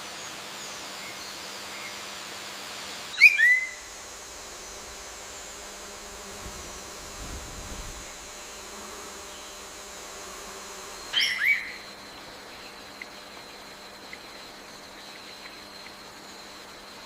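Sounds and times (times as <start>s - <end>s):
high-pitched insect drone: 2.9s - 17.0s
bird call with sliding notes: 3.2s - 6.3s, 8.0s - 13.2s.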